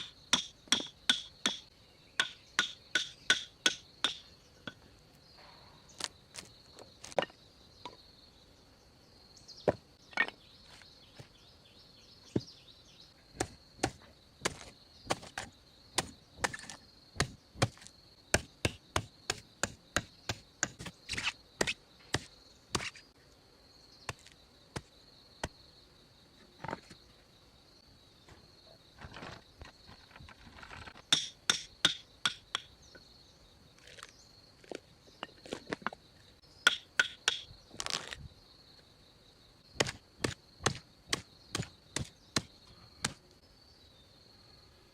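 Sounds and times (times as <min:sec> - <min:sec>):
hand tools knocking on wood: 0:00.0 - 0:04.8, 0:31.1 - 0:32.7
high insect drone: 0:00.0 - 0:44.9.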